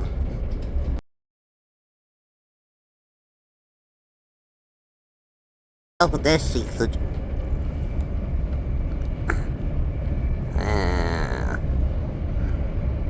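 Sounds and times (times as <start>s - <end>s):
train running rumble: 0.0s - 1.0s, 6.0s - 13.0s
voice-like hum or grunt: 9.3s - 9.5s, 10.6s - 11.6s.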